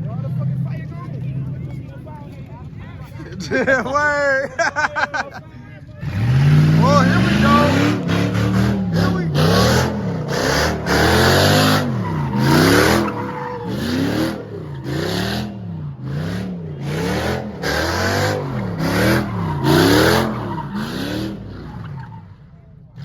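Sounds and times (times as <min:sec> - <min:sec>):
tires squealing: 0:05.8 - 0:23.0
car engine revving: 0:05.9 - 0:23.0.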